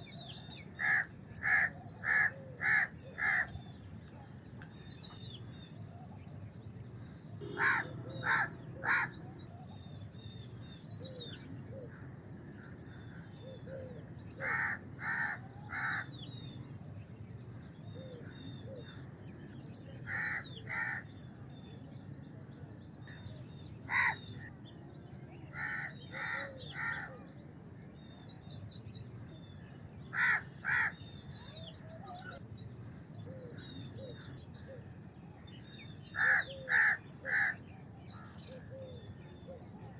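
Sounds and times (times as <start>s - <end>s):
low background noise: 0.0s - 39.9s
crows cawing: 0.8s - 3.5s, 7.4s - 9.2s, 14.4s - 16.1s, 20.1s - 21.1s, 23.9s - 24.3s, 25.6s - 27.2s, 30.1s - 31.0s, 36.2s - 37.6s.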